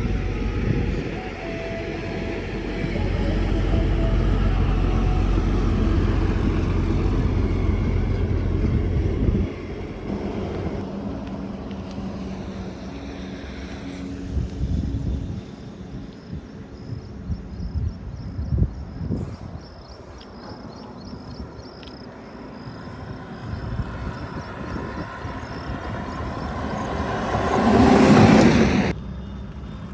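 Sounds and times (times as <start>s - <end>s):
heavy trucks passing: 0.0s - 16.0s, 22.8s - 29.9s
steady engine hum: 0.0s - 19.6s, 21.4s - 29.9s.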